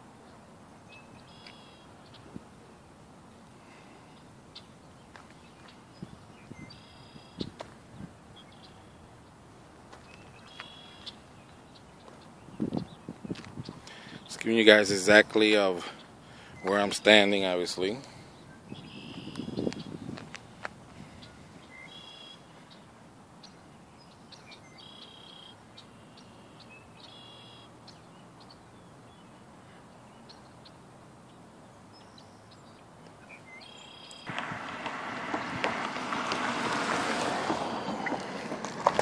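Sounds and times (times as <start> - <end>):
songbird calling: 0.2 - 2.4, 4.0 - 20.1, 21.0 - 35.9
loud rush of noise: 34.3 - 39.0.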